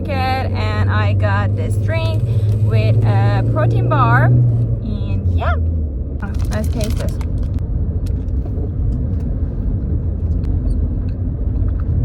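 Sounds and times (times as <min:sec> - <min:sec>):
motor vehicle rumble: 0:00.0 - 0:12.0.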